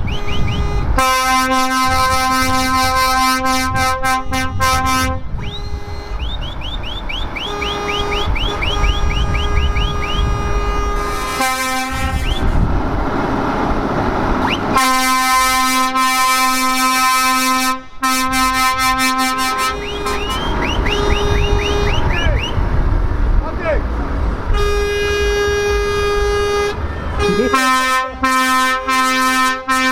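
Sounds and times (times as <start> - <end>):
long air horn blast: 0.0 - 6.6, 7.4 - 12.7, 14.4 - 22.2, 24.5 - 29.9
truck air horn chirps: 0.0 - 12.6, 14.4 - 22.6, 24.5 - 29.9
truck engines rumbling: 0.0 - 29.9.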